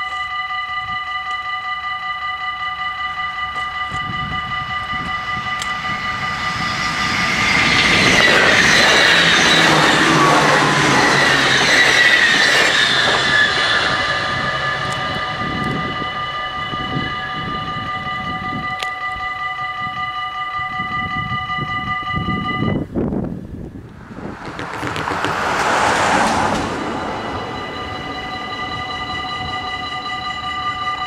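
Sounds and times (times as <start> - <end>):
train rumble and wheel noise: 0.0 - 31.0
train whine: 0.0 - 31.0
level-crossing bells ringing: 26.7 - 31.0.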